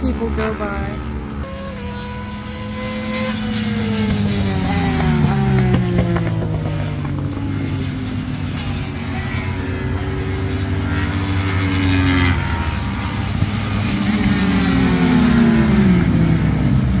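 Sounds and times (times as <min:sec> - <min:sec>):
vehicle engines revving: 0:00.0 - 0:17.0.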